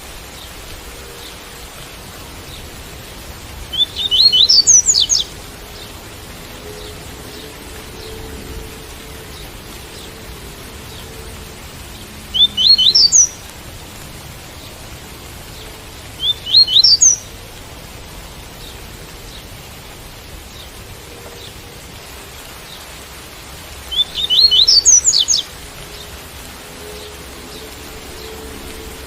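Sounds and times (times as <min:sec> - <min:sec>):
rain hiss: 0:00.0 - 0:29.0
bird singing rising notes: 0:03.7 - 0:05.9, 0:12.3 - 0:13.4, 0:16.2 - 0:17.3, 0:23.9 - 0:29.0.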